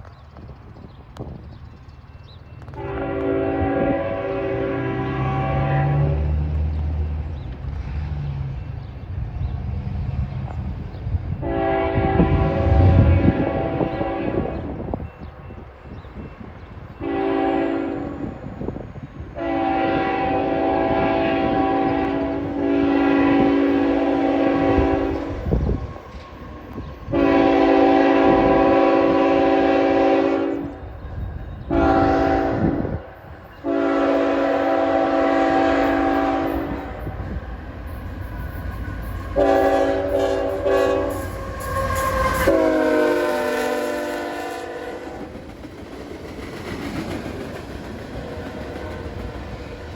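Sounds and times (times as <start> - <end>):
train rumbling: 0.0 - 49.9
locomotive horn blasts: 2.7 - 6.5, 11.4 - 14.8, 17.0 - 18.4, 19.4 - 25.6, 27.1 - 30.8, 31.6 - 37.3, 39.2 - 45.3.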